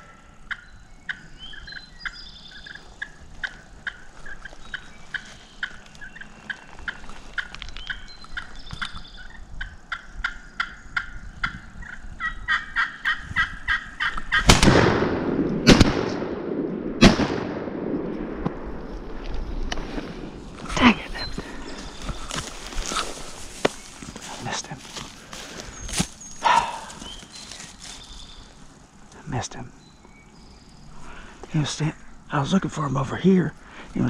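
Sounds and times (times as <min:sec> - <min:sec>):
wild turkey calling: 0:00.0 - 0:14.5, 0:20.8 - 0:29.2
loud gunshot bangs: 0:14.4 - 0:18.0.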